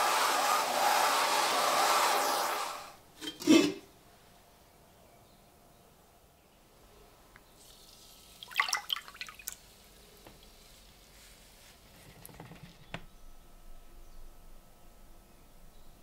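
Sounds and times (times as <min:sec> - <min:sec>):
liquid dripping and splashing: 0:07.6 - 0:09.7.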